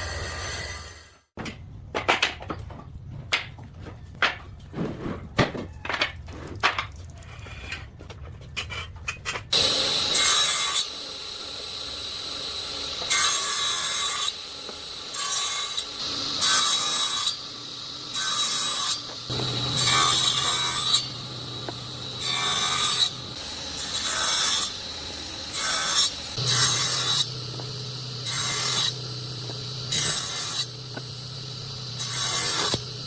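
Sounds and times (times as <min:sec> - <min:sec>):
steady low hum: 0:19.1 - 0:33.0.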